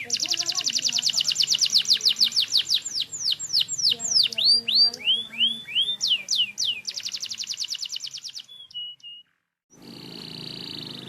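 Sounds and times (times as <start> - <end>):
canary singing: 0.0 - 11.0.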